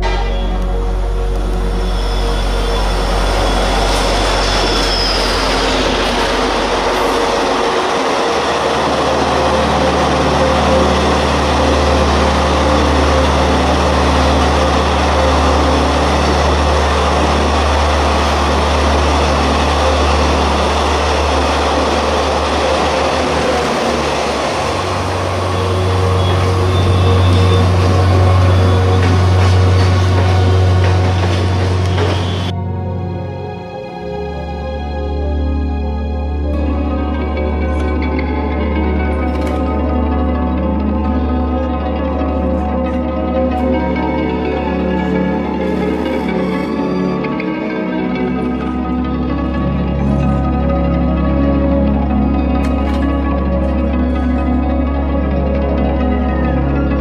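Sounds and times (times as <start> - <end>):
faint high wheel squeal: 0.0 - 32.5
locomotive engine drone: 0.0 - 57.0
wheels rumbling on rails: 0.0 - 57.0.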